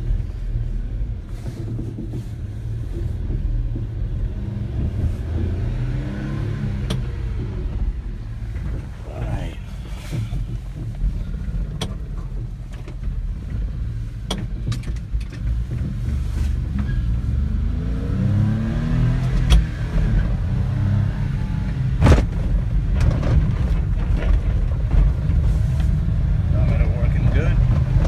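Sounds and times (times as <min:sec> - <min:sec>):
small truck engine revving: 0:04.3 - 0:08.1, 0:17.0 - 0:22.2.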